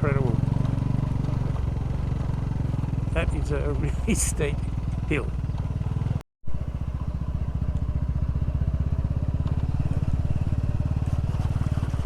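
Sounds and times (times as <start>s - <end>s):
single-cylinder motorcycle engine: 0.0s - 12.0s.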